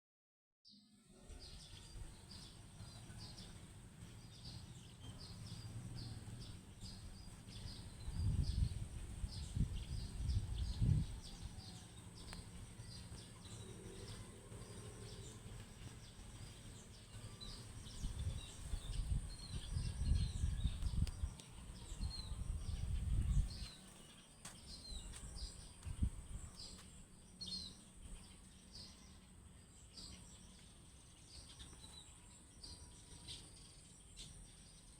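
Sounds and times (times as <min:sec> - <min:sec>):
small birds chirping: 0:00.7 - 0:34.9
wind buffeting microphone: 0:05.2 - 0:23.9, 0:24.8 - 0:26.8.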